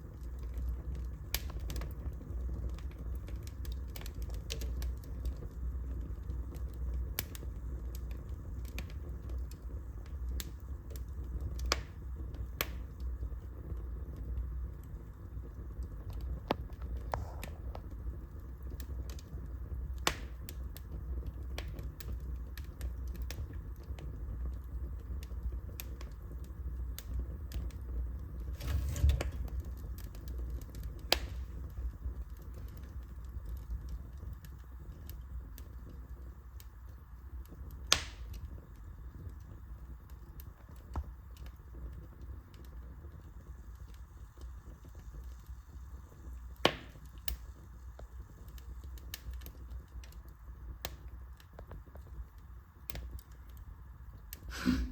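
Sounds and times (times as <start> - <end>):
fireplace fire crackling: 0.0 - 54.9
low steady rumble: 22.9 - 40.3.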